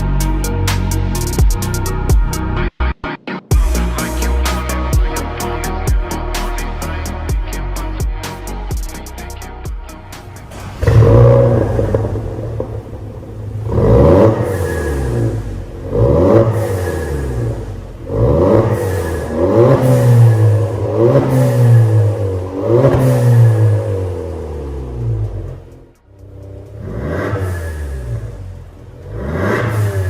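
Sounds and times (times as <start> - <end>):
car engine revving in blips: 10.2 - 30.0.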